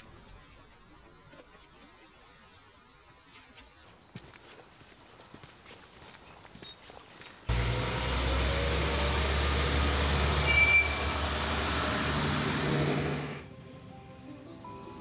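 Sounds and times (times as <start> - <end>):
thin high whine: 7.5 - 13.5
train wheels rumbling on rails: 7.5 - 13.5.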